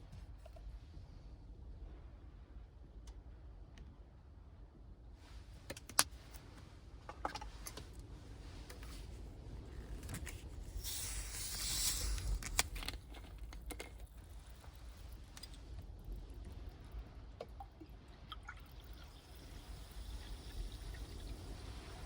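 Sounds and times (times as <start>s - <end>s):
steady low rumble: 0.0s - 22.0s
hissing rustle: 8.8s - 13.7s.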